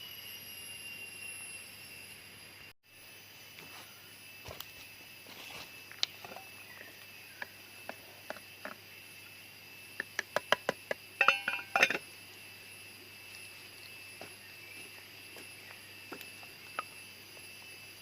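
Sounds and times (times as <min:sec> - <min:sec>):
high insect drone: 0:00.0 - 0:18.0
cookware clinking: 0:11.2 - 0:12.0.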